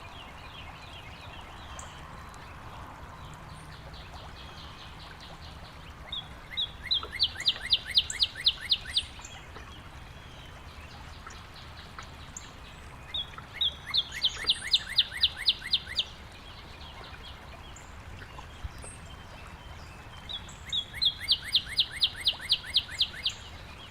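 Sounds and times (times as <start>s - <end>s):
steady low background noise: 0.0s - 23.9s
songbird singing a trill: 6.1s - 9.4s, 13.1s - 16.2s, 19.9s - 23.9s.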